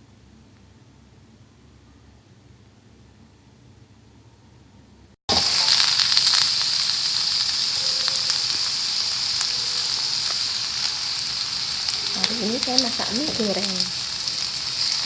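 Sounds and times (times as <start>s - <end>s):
food sizzling in hot oil: 5.3s - 15.0s.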